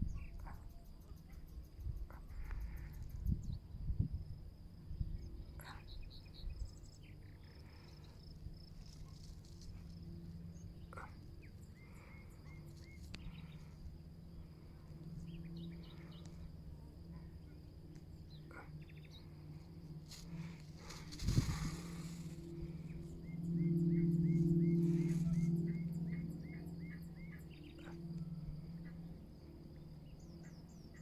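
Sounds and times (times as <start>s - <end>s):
low hum: 0.0s - 31.0s
high-pitched whine: 4.9s - 31.0s.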